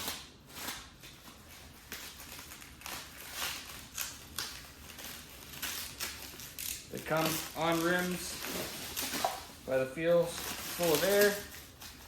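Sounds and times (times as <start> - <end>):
rustling and scraping handling noises: 6.6 - 12.0.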